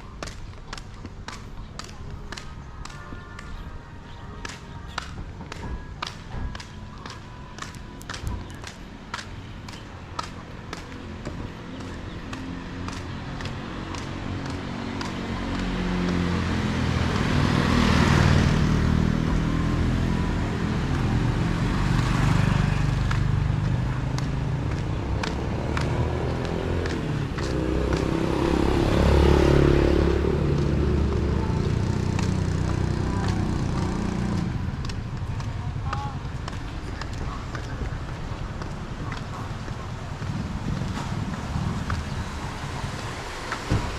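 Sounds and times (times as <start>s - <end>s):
vehicles passing on street: 0.0s - 43.9s.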